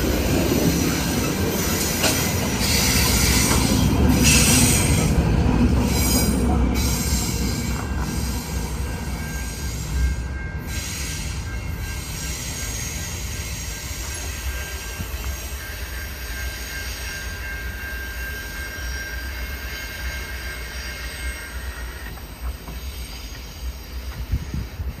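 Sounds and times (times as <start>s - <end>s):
train cars rumbling: 0.0s - 25.0s
wheel squeal: 5.9s - 25.0s.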